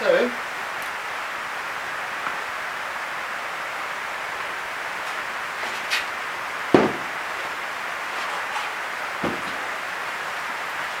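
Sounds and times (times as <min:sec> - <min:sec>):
steady background hiss: 0:00.0 - 0:11.0
sharp wooden knock: 0:06.7 - 0:07.1, 0:09.2 - 0:09.6.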